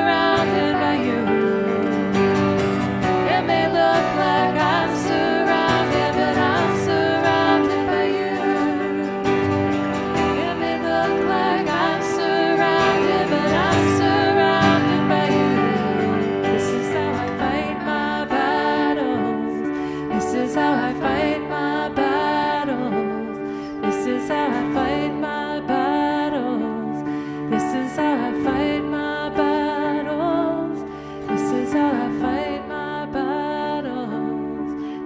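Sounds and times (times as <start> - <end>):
worship band music: 0.0 - 22.9
guitar: 0.0 - 35.0
person singing: 0.0 - 35.0.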